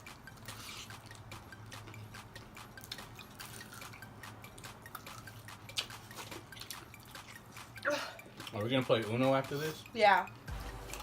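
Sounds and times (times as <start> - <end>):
wet chewing mouth clicks: 0.0 - 8.6.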